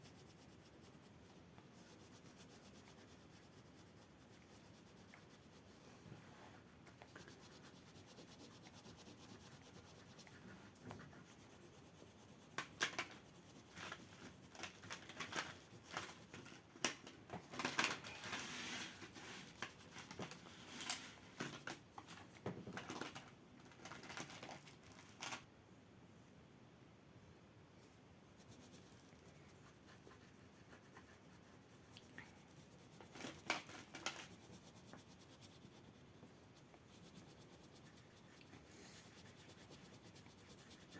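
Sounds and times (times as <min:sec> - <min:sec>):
pastel scratching on paper: 0:00.0 - 0:06.4, 0:07.0 - 0:16.8, 0:18.1 - 0:20.9, 0:28.3 - 0:40.9.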